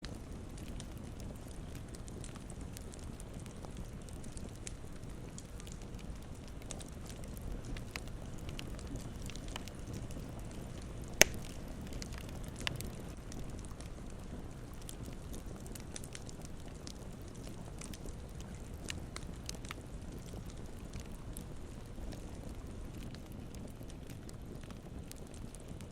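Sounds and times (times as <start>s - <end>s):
campfire crackling: 0.0s - 25.9s
loud sharp fire pop: 11.2s - 11.6s.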